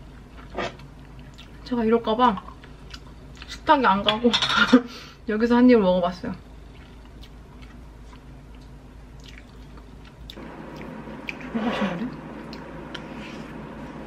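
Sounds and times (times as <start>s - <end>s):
person chewing rice: 6.7s - 11.5s.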